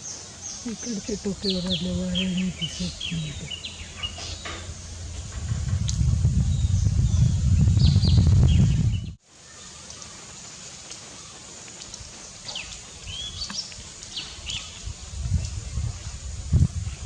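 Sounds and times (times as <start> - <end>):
wild birds chirping and whistling: 0.0 - 10.1, 12.0 - 15.9
low steady background rumble: 0.4 - 9.2
low thud: 3.7 - 9.2.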